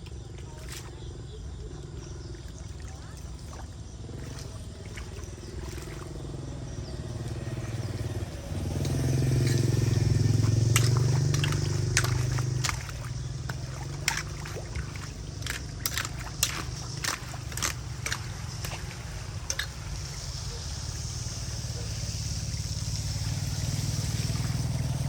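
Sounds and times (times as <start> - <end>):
engine running: 0.0 - 25.0
sharp clicks and knocks: 8.8 - 20.0.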